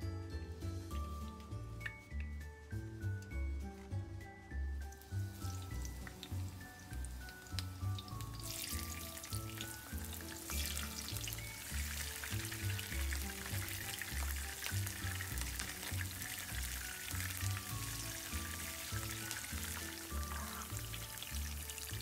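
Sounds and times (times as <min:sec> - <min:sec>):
pepper deep-frying in oil: 0:04.8 - 0:22.0.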